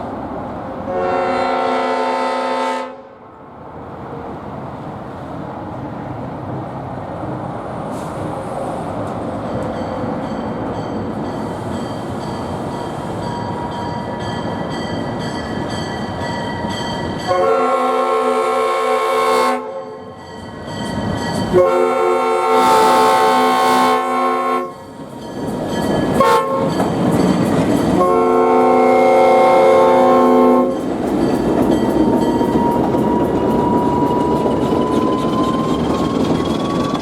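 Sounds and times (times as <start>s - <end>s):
locomotive air horn chord: 0.9s - 3.2s, 17.3s - 20.0s, 21.5s - 24.8s, 26.2s - 26.8s, 28.0s - 30.8s.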